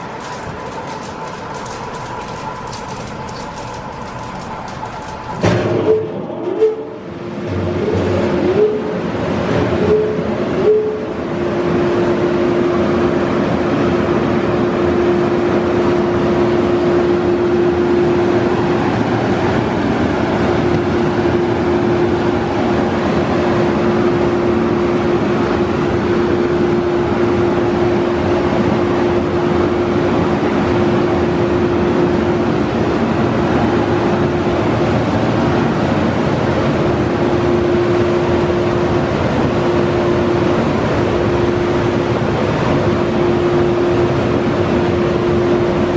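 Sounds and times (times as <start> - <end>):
car wash rushing noise: 0.0 - 6.0.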